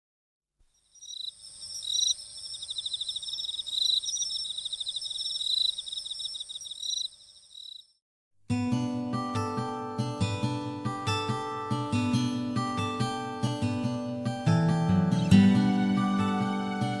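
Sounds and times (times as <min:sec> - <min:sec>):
cricket-like chirping trills: 0:00.7 - 0:07.9.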